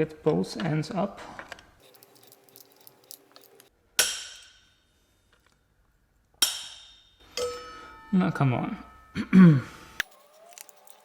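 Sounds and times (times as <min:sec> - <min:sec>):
metallic clinks ringing: 0:01.8 - 0:03.7, 0:07.3 - 0:08.1, 0:10.0 - 0:11.0.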